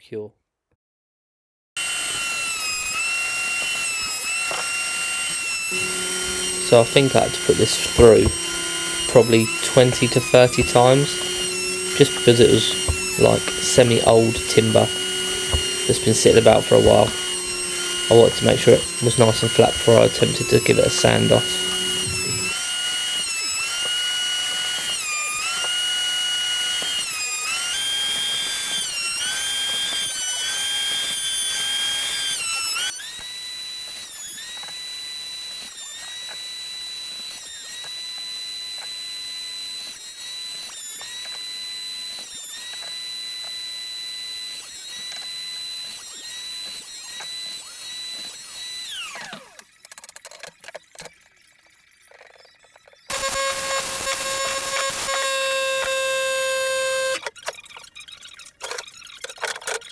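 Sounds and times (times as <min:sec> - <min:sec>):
electric sander whining on wood: 0:01.8 - 0:49.8, 0:53.1 - 0:57.4.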